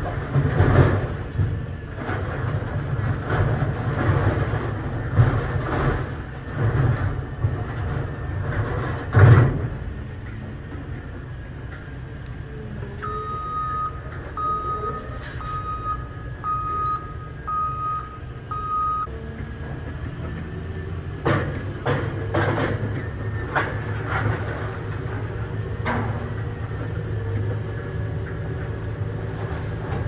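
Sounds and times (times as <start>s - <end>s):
scrap metal banging and clanking: 0.0s - 12.0s, 21.1s - 27.6s
heavy machinery rumble: 0.0s - 30.0s
reversing alarm beeps: 13.0s - 19.1s.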